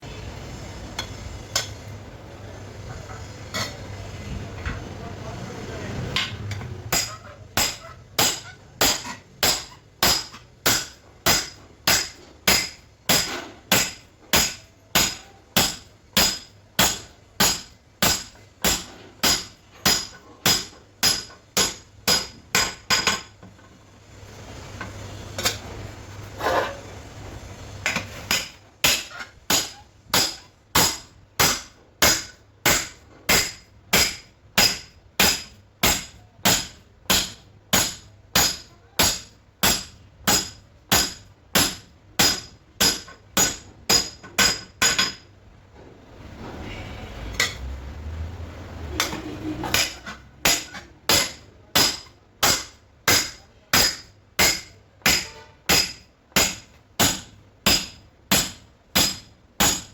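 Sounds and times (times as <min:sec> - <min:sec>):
hammer striking metal: 0:06.2 - 0:23.3, 0:27.9 - 0:45.2, 0:49.0 - 0:59.9.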